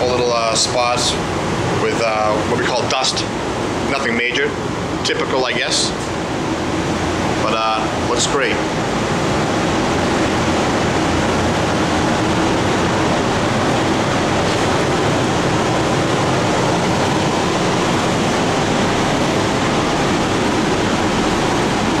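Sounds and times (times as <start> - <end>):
loud rushing noise: 5.8 - 22.0.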